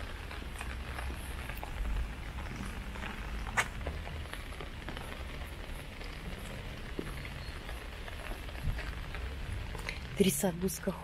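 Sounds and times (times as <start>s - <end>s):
raindrops tapping: 0.0s - 11.0s
steady rain falling: 0.0s - 11.0s.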